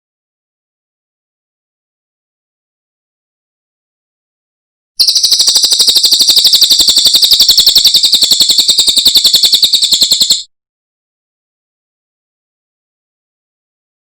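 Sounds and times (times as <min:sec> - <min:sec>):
bird trilling: 0:05.0 - 0:10.4.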